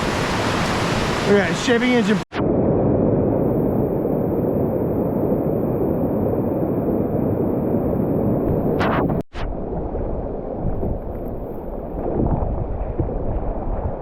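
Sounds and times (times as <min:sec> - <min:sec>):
rushing whitewater roar: 0:00.0 - 0:02.2.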